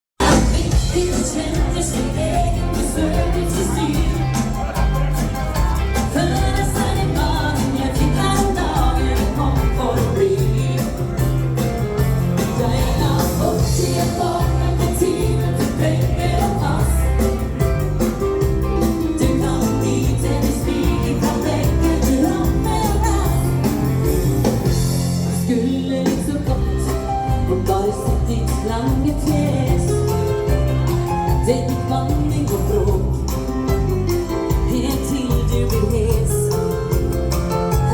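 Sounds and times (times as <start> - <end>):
woman singing: 0.2 - 5.1, 5.8 - 11.4, 12.0 - 17.6, 18.8 - 24.2, 25.2 - 37.1
live dance band: 0.2 - 37.9.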